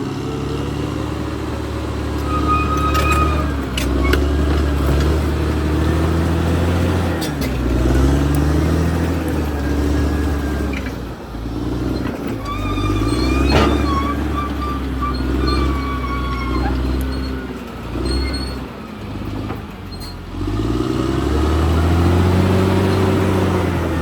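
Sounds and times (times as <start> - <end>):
bulldozer diesel engine: 0.0 - 24.0
steel tracks clanking: 2.0 - 5.5, 10.4 - 20.2
thin high squeals: 2.1 - 4.6, 12.4 - 18.6.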